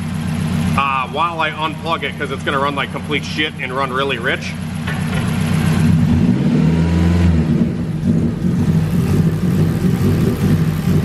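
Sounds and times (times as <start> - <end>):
car engine revving roughly: 4.5 - 11.0.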